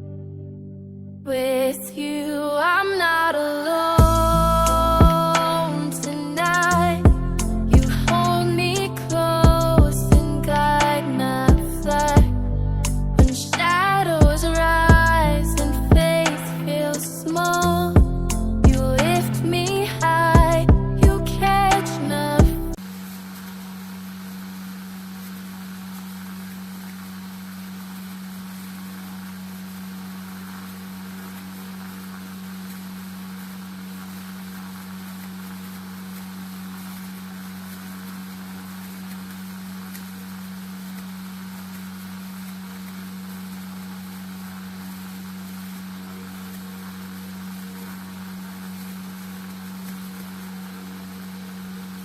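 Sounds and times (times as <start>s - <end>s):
cooling fan motor humming: 4.0s - 12.4s, 13.2s - 52.0s.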